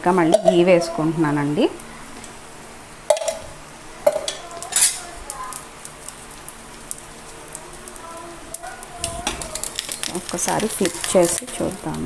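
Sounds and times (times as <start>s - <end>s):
bread sizzling in a pan: 0.1s - 12.0s
utensil knocking against pan: 3.1s - 3.5s.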